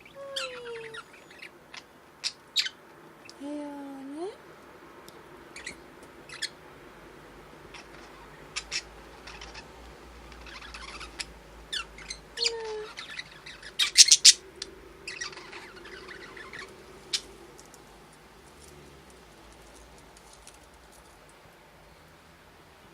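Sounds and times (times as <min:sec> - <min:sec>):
budgerigars chirping and squawking: 0:00.0 - 0:02.8, 0:05.6 - 0:06.6, 0:07.7 - 0:09.7, 0:10.3 - 0:17.3.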